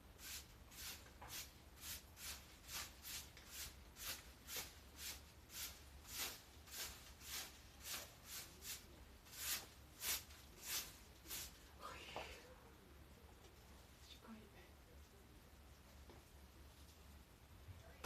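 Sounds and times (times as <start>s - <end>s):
scraping strokes: 0.2s - 11.6s.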